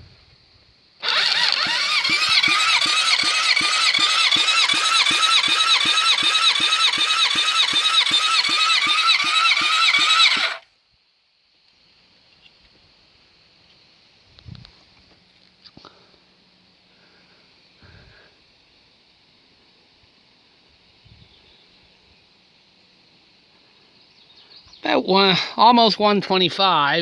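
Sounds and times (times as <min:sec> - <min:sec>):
car starter motor cranking: 0:01.0 - 0:10.6.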